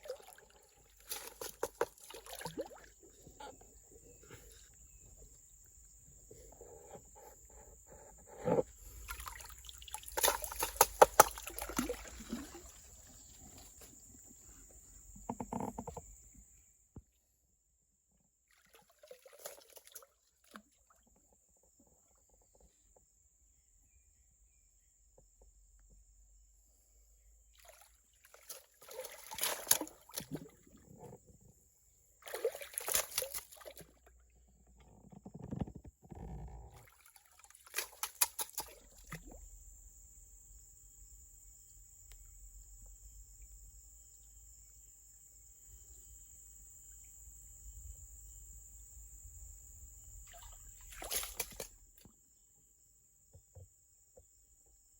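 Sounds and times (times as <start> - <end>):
water sloshing and splashing: 0.0 - 5.0, 8.0 - 14.2, 18.5 - 21.3, 27.5 - 31.5, 32.2 - 39.4, 50.2 - 52.1
low swirling water: 8.8 - 13.3.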